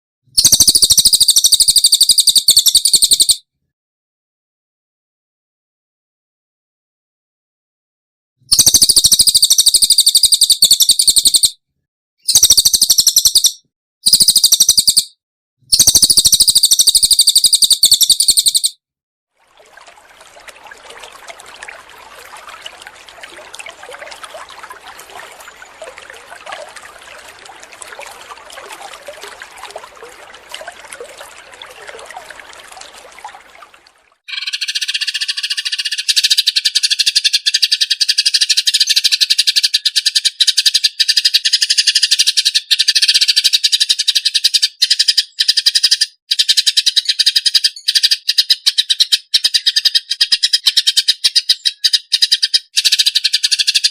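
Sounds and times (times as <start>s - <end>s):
crackling bird chatter: 19.5s - 34.1s
high rapid bird trilling: 19.5s - 34.6s.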